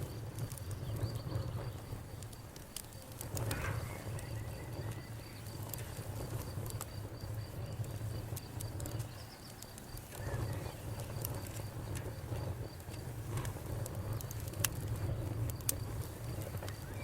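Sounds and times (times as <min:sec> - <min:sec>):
cricket chirping: 0:00.0 - 0:13.0
campfire crackling and popping: 0:00.0 - 0:17.0.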